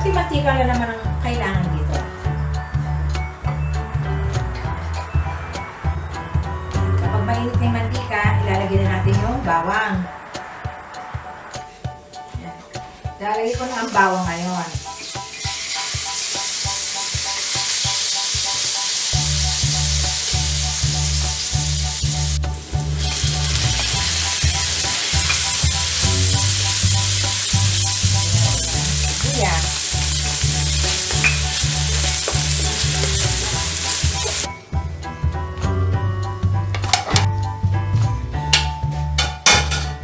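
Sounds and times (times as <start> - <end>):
garlic and onion sizzling in oil: 13.4 - 34.5.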